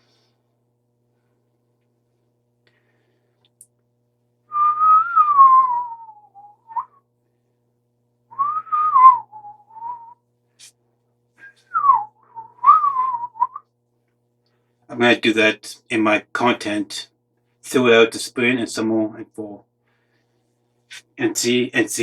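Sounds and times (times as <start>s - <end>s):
person whistling: 4.5s - 7.0s, 8.4s - 10.2s, 11.4s - 13.6s.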